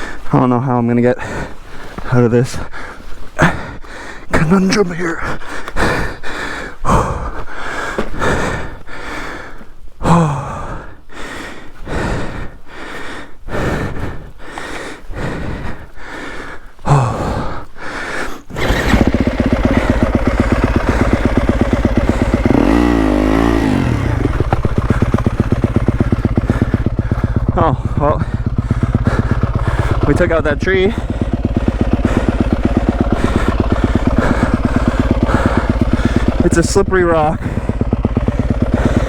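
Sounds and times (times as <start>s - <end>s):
heavy breathing and gasps: 0.0s - 0.4s, 1.0s - 39.0s
motorcycle engine running and revving: 18.5s - 39.0s.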